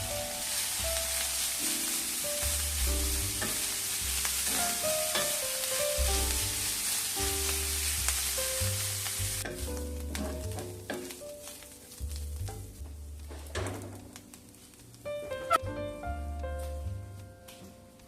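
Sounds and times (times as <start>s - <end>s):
food sizzling in a pan: 0.0s - 15.6s
background music with bass line: 2.4s - 5.1s, 5.9s - 10.9s, 12.0s - 14.4s, 15.1s - 17.5s.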